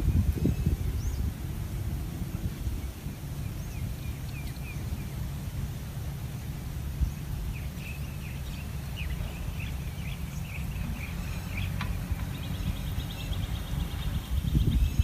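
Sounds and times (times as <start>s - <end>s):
low background rumble: 0.0s - 15.0s
small birds chirping: 0.0s - 15.0s
buzzy bird trill: 2.9s - 5.2s.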